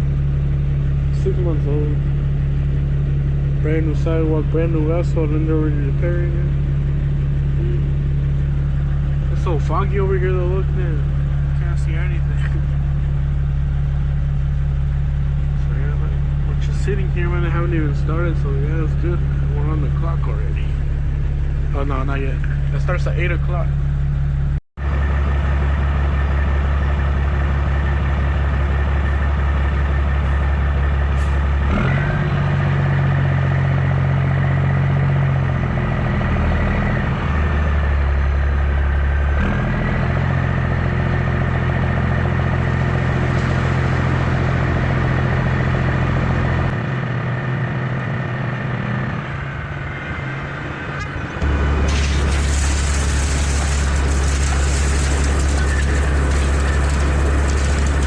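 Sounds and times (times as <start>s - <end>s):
diesel truck engine droning: 0.0s - 58.0s.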